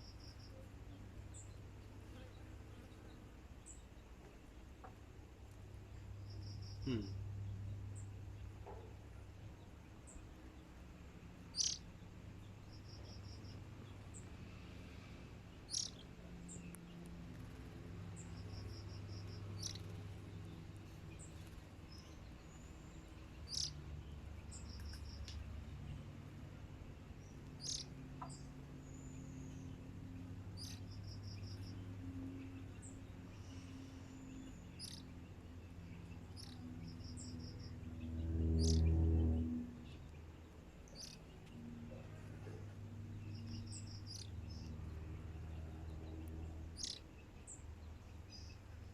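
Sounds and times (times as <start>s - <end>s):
low hum: 5.3s - 48.9s
bird chirping: 5.8s - 48.9s.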